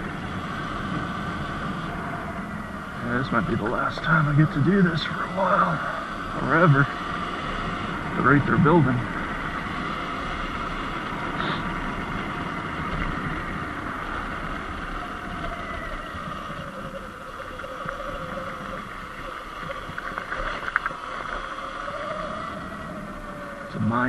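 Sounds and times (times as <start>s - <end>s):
electric motor whine: 0.0s - 24.0s
wind and tyre noise: 0.0s - 24.0s.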